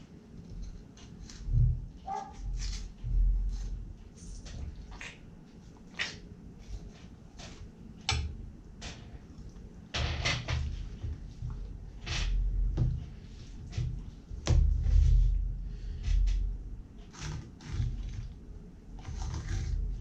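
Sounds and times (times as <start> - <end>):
knife scraping along fish backbone: 17.0 - 18.4, 19.0 - 20.0.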